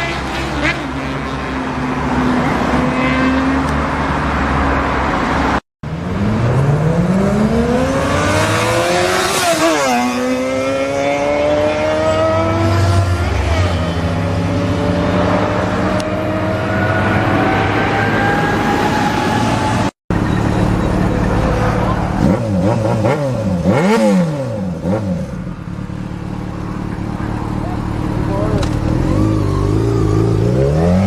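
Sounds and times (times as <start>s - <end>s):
motorcycle engine accelerating: 20.1s - 31.0s.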